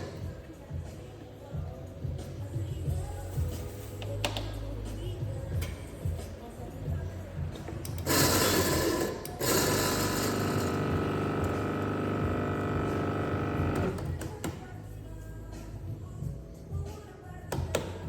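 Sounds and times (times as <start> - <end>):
coffee grinder motor running: 8.1 - 14.1.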